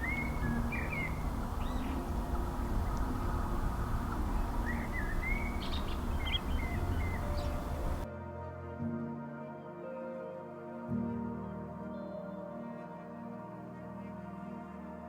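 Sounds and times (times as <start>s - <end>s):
bird warbling: 0.0s - 8.0s
steady low rumble: 0.0s - 8.0s.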